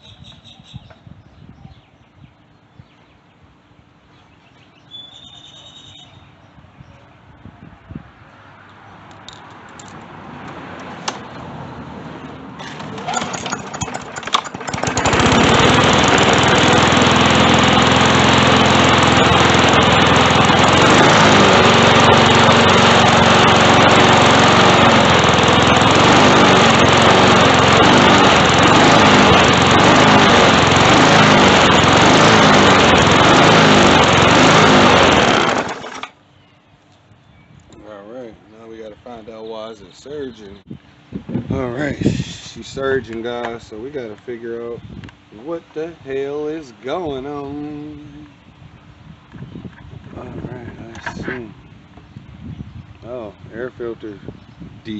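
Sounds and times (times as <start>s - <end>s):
lawn mower engine surging: 12.5s - 36.2s.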